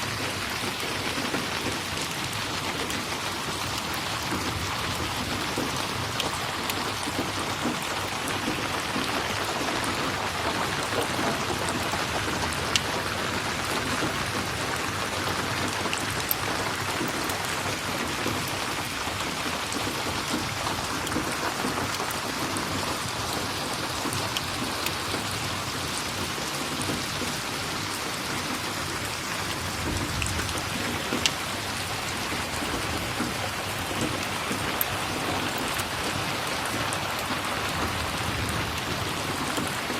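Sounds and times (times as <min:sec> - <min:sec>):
steady rain falling: 0:00.0 - 0:39.9
wood fire crackles: 0:01.8 - 0:22.5.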